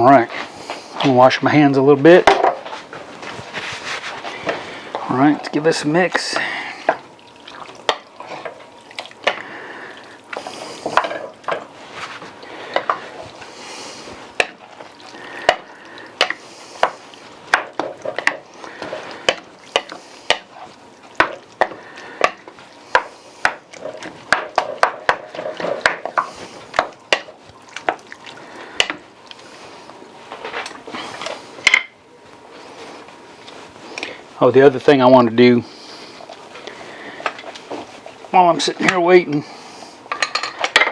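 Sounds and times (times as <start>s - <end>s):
spoon stirring thick chili: 0.0s - 31.7s.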